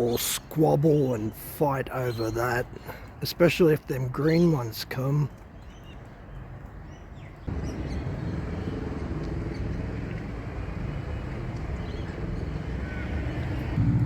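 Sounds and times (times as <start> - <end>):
vehicle engine running: 7.5 - 14.0.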